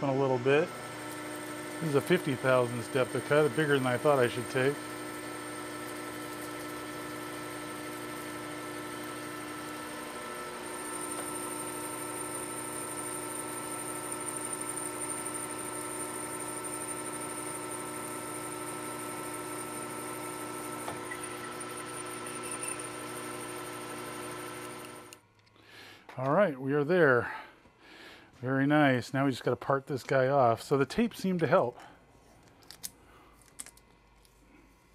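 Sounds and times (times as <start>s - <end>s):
metal lathe whining hum: 0.0s - 25.2s.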